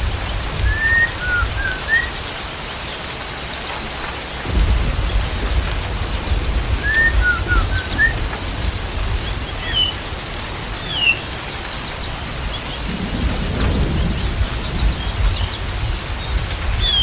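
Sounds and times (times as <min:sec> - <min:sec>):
songbird whistling: 0:00.6 - 0:02.2, 0:06.7 - 0:08.6
steady low rumble: 0:04.4 - 0:17.0.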